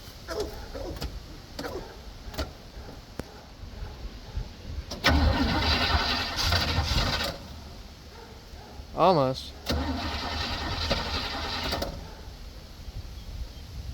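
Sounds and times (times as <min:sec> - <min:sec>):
engine starter cranking: 0:04.8 - 0:07.8, 0:09.6 - 0:12.1.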